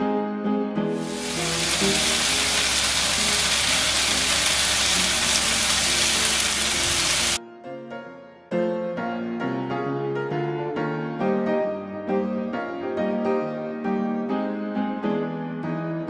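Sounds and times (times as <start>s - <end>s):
vegetables sizzling in a pan: 1.0s - 7.4s.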